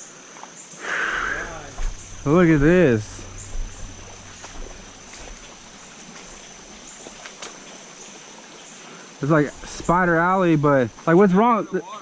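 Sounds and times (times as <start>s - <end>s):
insect drone: 0.0s - 11.8s
moving water hiss: 0.0s - 12.0s
light clicks and knocks: 1.2s - 7.7s.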